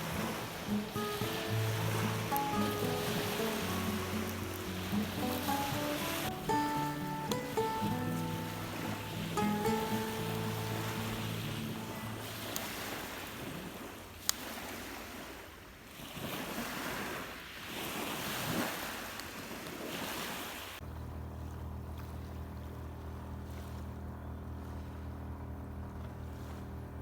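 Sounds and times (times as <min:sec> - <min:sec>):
steady low hum: 0:00.0 - 0:12.7, 0:20.8 - 0:27.0
waves washing onto shore: 0:00.0 - 0:20.8.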